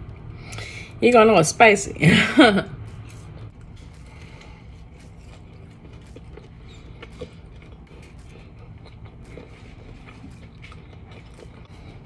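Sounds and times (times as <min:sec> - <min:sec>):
person chewing: 0:02.8 - 0:12.0.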